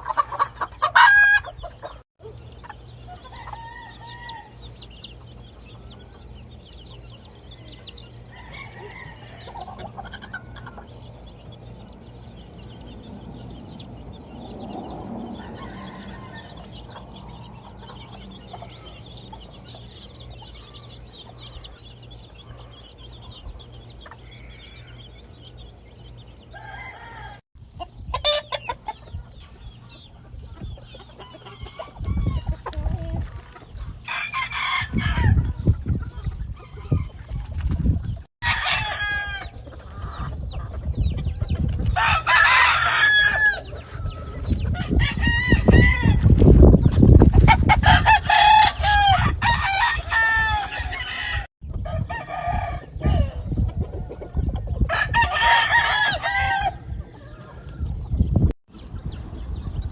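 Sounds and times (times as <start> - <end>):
roosters crowing: 0.0 - 27.4, 28.1 - 37.6, 38.4 - 58.0
chickens clucking: 0.0 - 59.9
low rumble: 9.1 - 26.5.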